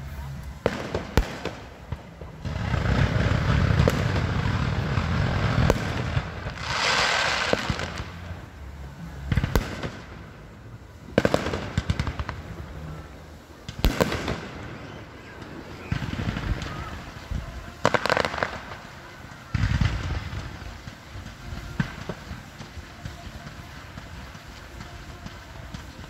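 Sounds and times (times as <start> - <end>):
fireworks booming: 0.0 - 26.0
fireworks hissing: 0.0 - 26.0
sharp firework bangs: 0.6 - 8.4, 13.6 - 26.0.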